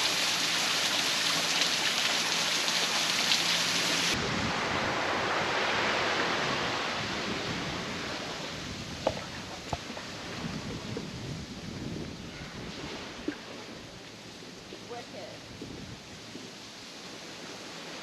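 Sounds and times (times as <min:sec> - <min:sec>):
small waterfall rushing: 0:00.0 - 0:10.1.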